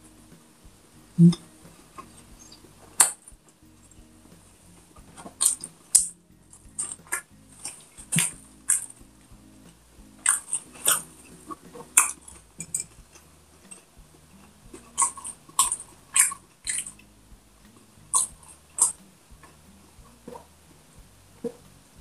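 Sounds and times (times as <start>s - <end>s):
wet chewing and lip smacks: 14.9s - 17.0s.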